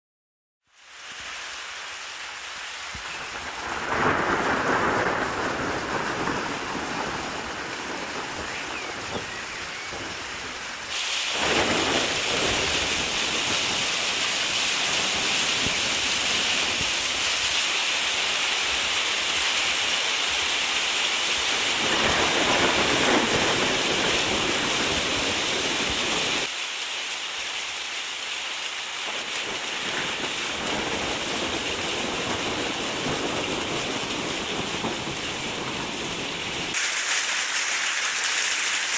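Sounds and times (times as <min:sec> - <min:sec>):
steady rain falling: 0:00.6 - 0:38.9
thunder rumbling: 0:03.1 - 0:17.2, 0:21.6 - 0:26.5, 0:29.1 - 0:36.8.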